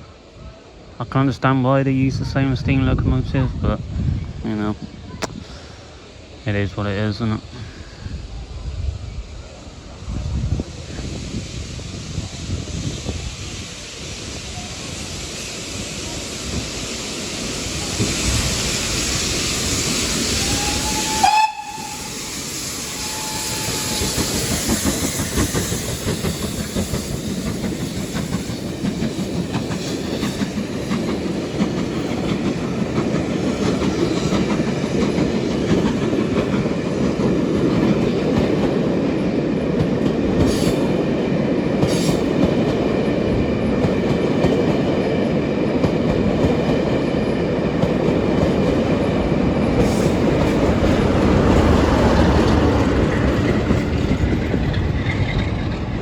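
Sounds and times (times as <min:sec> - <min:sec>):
steam hissing: 0:03.9 - 0:55.5
steam locomotive whistle: 0:20.2 - 0:27.3
rumble and wheel clatter of coaches: 0:23.0 - 0:56.0.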